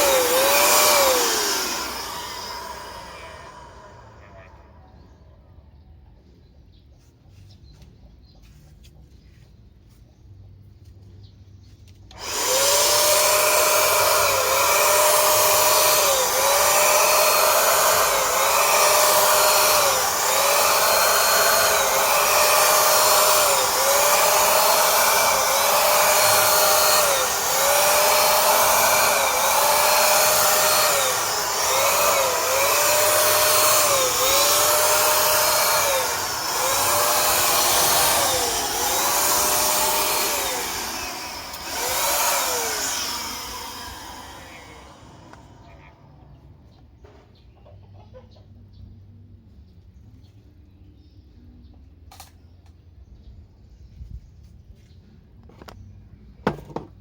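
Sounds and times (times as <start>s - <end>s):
spray gun blower motor whining: 0.0s - 5.0s, 12.1s - 46.1s.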